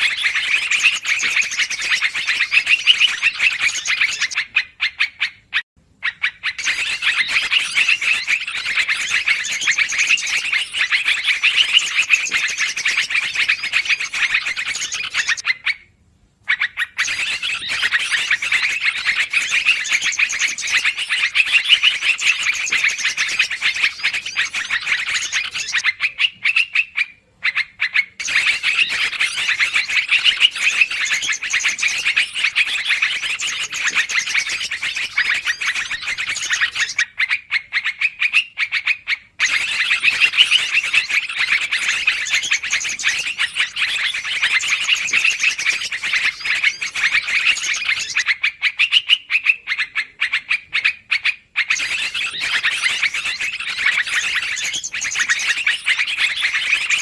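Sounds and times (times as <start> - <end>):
bulbuls chattering: 0.0 - 4.6, 6.1 - 15.5, 27.4 - 37.0, 39.4 - 48.4, 49.4 - 57.0.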